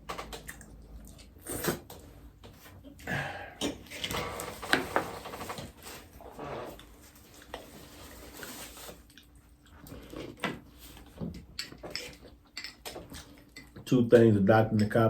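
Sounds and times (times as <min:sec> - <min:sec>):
faint chewing: 0:00.3 - 0:03.9, 0:06.5 - 0:14.3.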